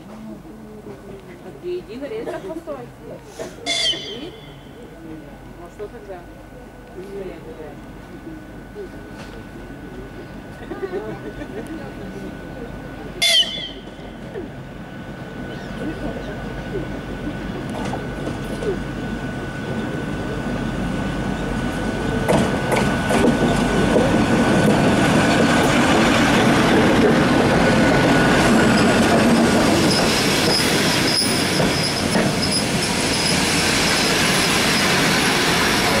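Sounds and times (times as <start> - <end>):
locomotive engine running: 6.8 - 36.0
brakes squealing: 28.4 - 36.0.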